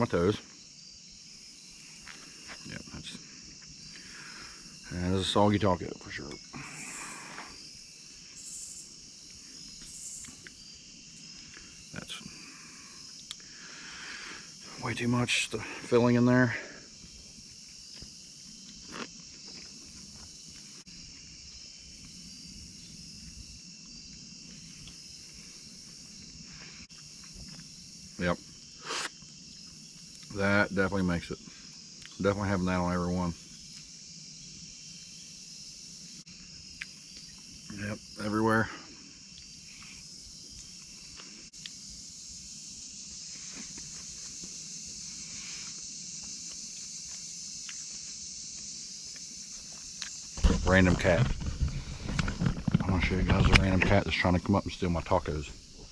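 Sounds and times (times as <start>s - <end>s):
insects chirring: 0.0s - 55.9s
faint rustles: 50.4s - 54.0s.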